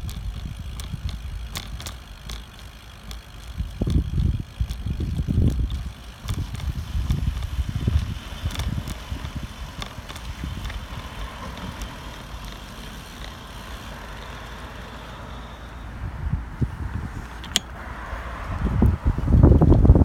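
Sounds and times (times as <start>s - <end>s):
wind buffeting microphone: 0.0s - 14.7s, 15.8s - 20.0s
light clicks and rattles: 0.0s - 15.8s.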